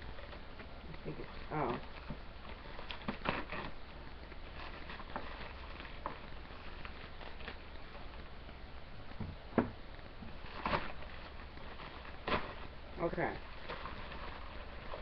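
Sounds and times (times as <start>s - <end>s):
plastic package rustling: 0.0s - 8.5s, 10.1s - 15.0s
steady low hum: 0.0s - 15.0s.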